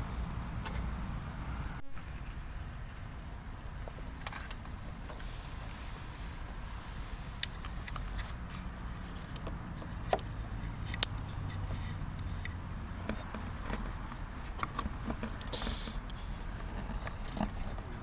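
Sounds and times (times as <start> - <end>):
low steady rumble: 0.0 - 18.0
sharp clicks and ticks: 9.2 - 17.4
short hiss: 15.5 - 16.3.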